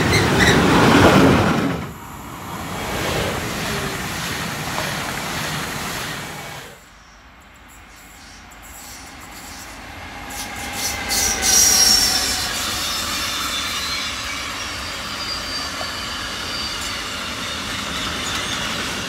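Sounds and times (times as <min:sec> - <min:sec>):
distant electric locomotive: 0:00.0 - 0:19.0
electric train passing: 0:00.0 - 0:19.0
freight train rushing past: 0:00.0 - 0:19.0.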